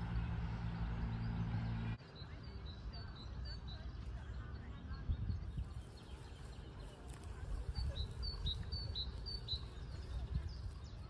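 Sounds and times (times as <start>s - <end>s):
low rumbling noise: 0.0s - 2.9s
songbird chirping: 0.0s - 11.0s.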